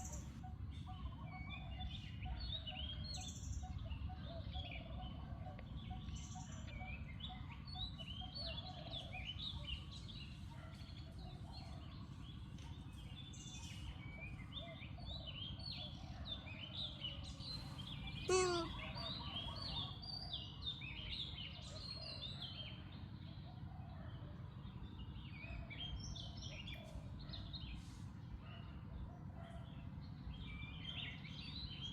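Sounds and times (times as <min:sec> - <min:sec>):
high chirping animal calls: 0:18.1 - 0:19.6.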